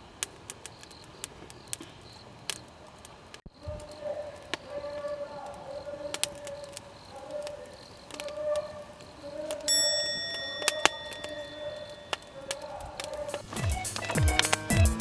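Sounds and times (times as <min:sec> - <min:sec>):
metallic clink: 0:09.7 - 0:12.4.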